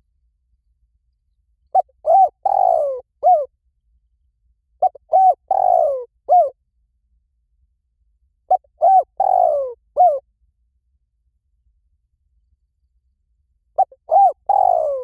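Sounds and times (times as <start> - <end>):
dove cooing: 1.7 - 3.5, 4.8 - 6.5, 8.5 - 10.2, 13.8 - 15.0.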